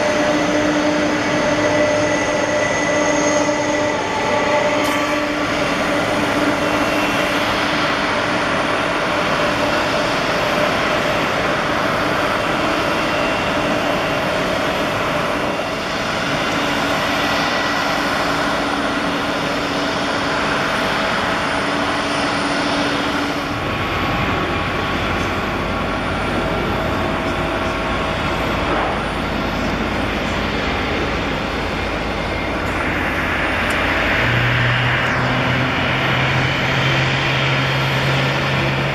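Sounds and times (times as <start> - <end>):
jet engines whining: 0.0 - 38.9.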